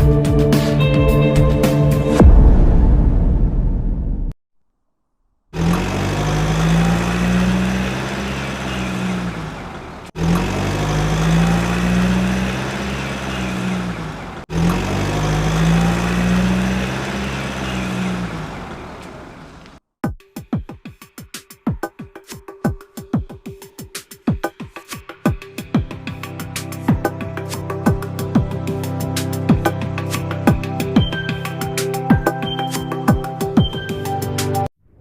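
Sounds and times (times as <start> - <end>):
vehicle engine revving: 5.6 - 19.8.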